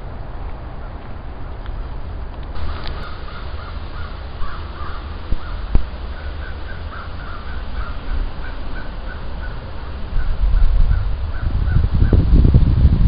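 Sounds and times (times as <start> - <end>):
wind rumble: 0.0 - 13.0
microphone handling noise: 2.5 - 6.2
bird calling: 2.6 - 12.3.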